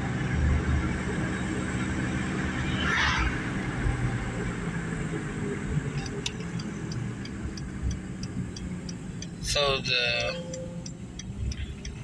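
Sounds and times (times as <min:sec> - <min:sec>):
car engine: 0:00.0 - 0:12.0
road noise inside car: 0:00.0 - 0:12.0
even ticking clicks: 0:06.0 - 0:12.0.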